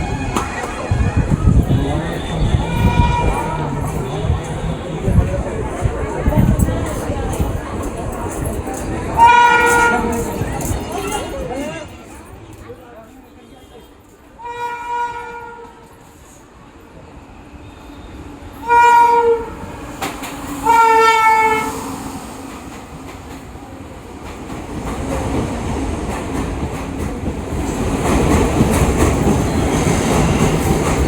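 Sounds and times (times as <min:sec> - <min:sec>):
train horn blasts: 0:00.0 - 0:05.2, 0:09.2 - 0:10.3, 0:14.4 - 0:16.0, 0:17.7 - 0:19.7, 0:20.6 - 0:21.9
train rumbling on rails: 0:00.0 - 0:31.0.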